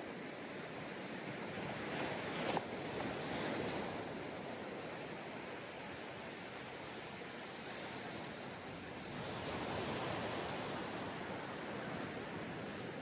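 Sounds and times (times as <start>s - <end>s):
ocean waves on beach: 0.0s - 13.0s.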